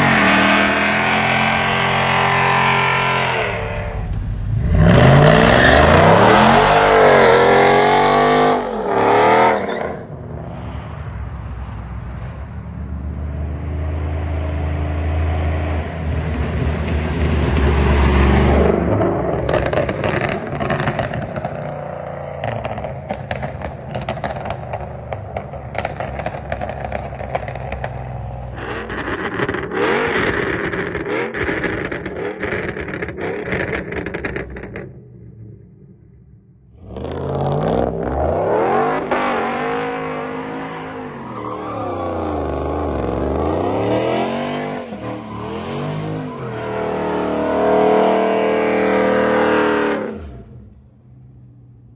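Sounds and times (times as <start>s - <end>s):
loud exhaust revving: 0.0s - 10.1s, 36.8s - 50.6s
exhaust crackling: 0.7s - 9.5s.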